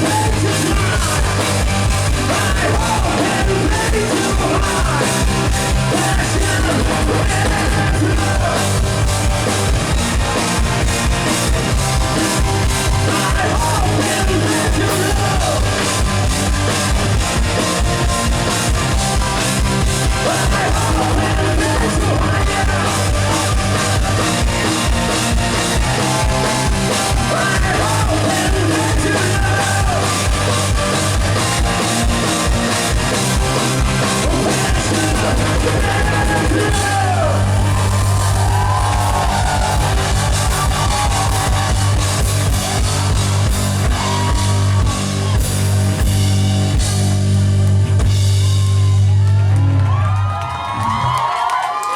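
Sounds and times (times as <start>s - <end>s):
man singing: 0.0s - 8.8s, 13.0s - 15.9s, 20.0s - 23.8s, 27.0s - 30.3s, 34.1s - 37.5s
live rock band playing: 0.0s - 49.9s.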